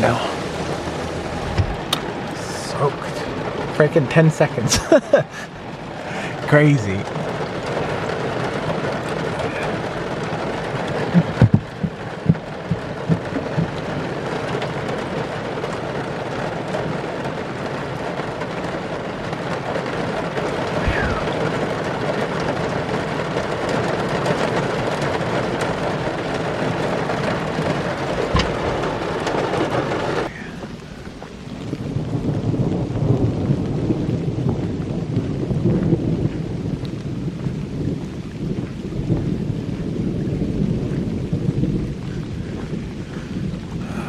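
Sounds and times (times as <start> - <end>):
heavy rain on a roof: 0.0 - 44.0
sharp knocks: 11.1 - 13.8.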